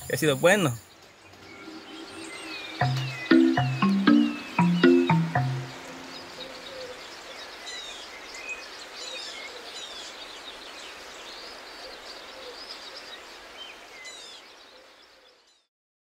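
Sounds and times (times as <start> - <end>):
background hiss: 0.0 - 15.4
birds chirping and whistling: 0.8 - 7.1
low wavering bird calls: 1.3 - 8.1.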